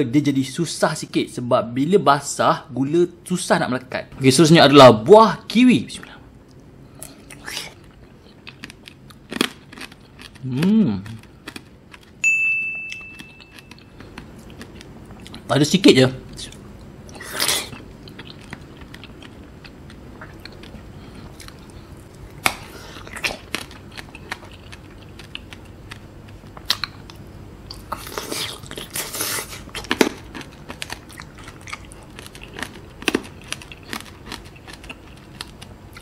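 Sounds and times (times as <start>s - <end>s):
soft chewing: 6.0s - 12.2s, 12.9s - 15.5s, 16.3s - 36.0s.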